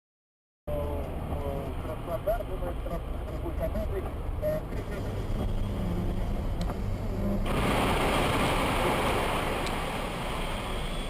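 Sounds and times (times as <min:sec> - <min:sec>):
road and engine noise inside vehicle: 0:00.7 - 0:07.6, 0:08.8 - 0:11.0.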